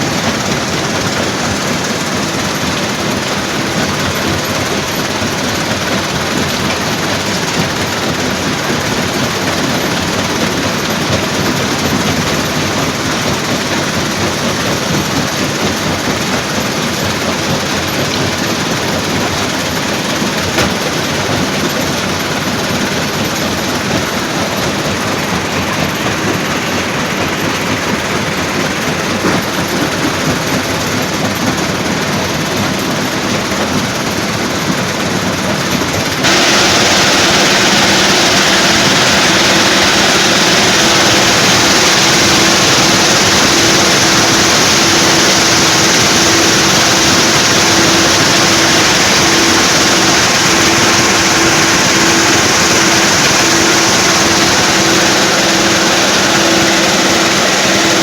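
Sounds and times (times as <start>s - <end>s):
stone crusher machinery running: 0.0s - 58.0s
pulsing hum: 36.2s - 58.0s.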